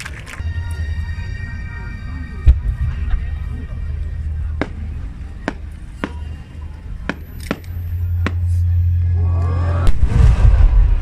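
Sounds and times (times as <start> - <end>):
voices: 0.0 - 9.9
deep rumble: 0.4 - 11.0
heavy firework boom: 9.8 - 11.0.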